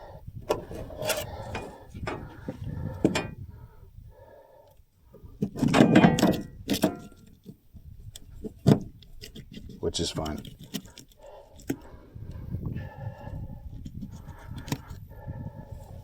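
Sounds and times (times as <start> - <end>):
handling knocks and clicks: 0.5 - 3.4, 5.4 - 11.9.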